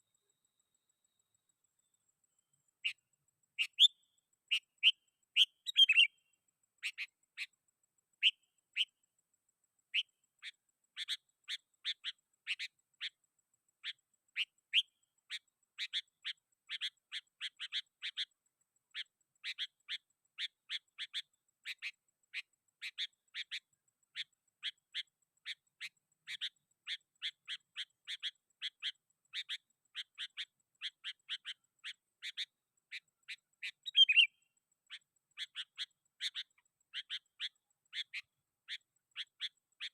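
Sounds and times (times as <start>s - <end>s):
bulbul chirping: 3.6s - 6.2s, 19.0s - 39.9s.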